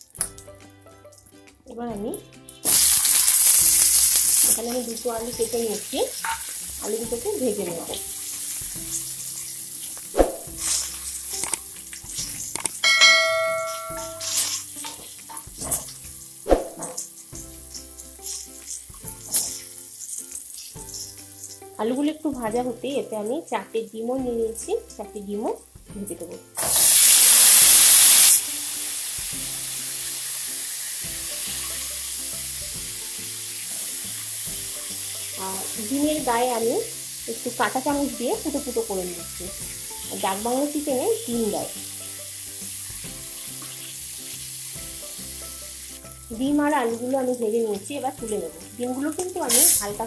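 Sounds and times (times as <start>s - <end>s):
potatoes sizzling in hot oil: 0.0s - 50.0s
short bell-like chime: 12.8s - 14.4s.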